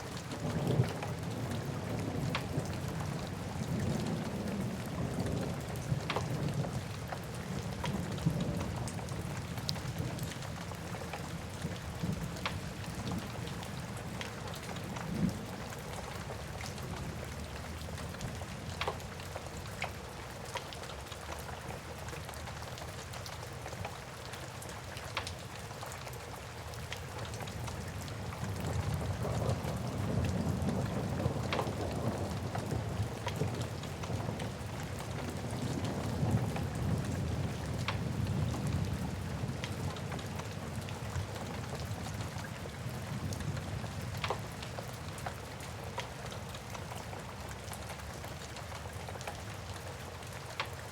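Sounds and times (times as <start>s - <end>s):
steady rain: 0.0s - 50.9s
low rumble of thunder: 0.2s - 19.6s, 27.6s - 45.7s.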